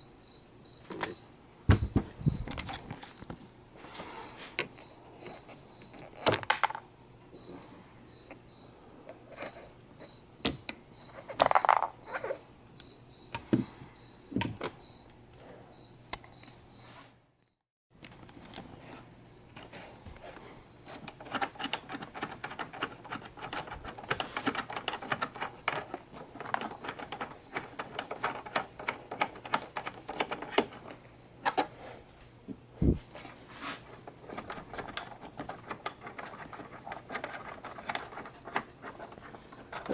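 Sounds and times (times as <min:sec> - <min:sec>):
cricket chirping: 0:00.0 - 0:17.6, 0:18.3 - 0:33.2, 0:33.9 - 0:39.9
parts clicking and knocking: 0:04.6 - 0:06.9, 0:09.1 - 0:12.3, 0:20.8 - 0:31.8, 0:33.9 - 0:39.9.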